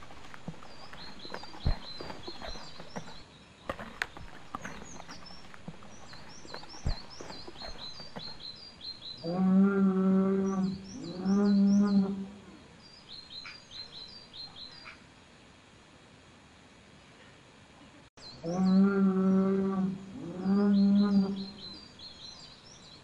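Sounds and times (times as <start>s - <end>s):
small birds chirping: 0.0s - 9.6s, 10.2s - 15.0s, 20.2s - 23.0s.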